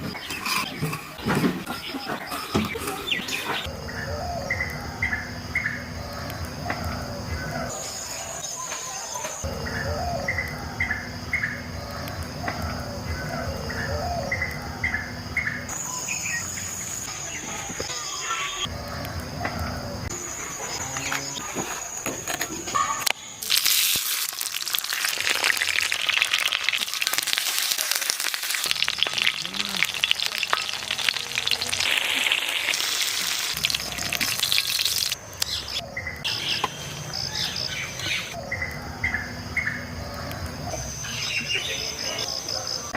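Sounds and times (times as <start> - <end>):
crackling oil: 19.0 - 36.3
food sizzling in hot oil: 23.4 - 35.2.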